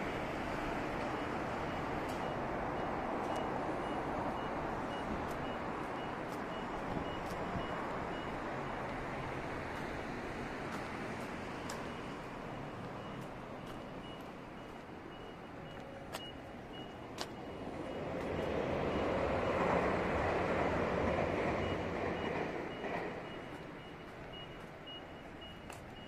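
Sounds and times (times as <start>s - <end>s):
electric train passing: 17.4s - 25.5s.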